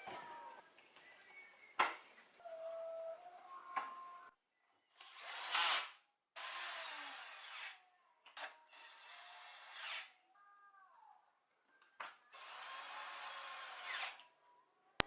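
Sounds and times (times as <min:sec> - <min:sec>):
small electric motor running: 0:12.4 - 0:14.2.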